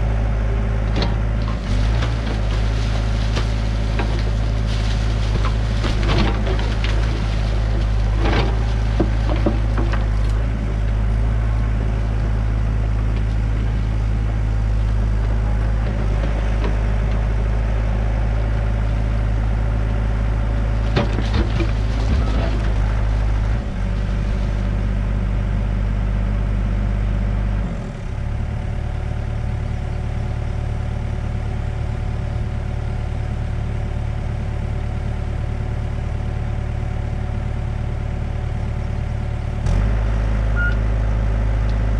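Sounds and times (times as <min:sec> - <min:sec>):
excavator diesel engine running: 0:00.0 - 0:41.9
bucket scraping soil and stone: 0:01.5 - 0:10.4, 0:20.8 - 0:24.7.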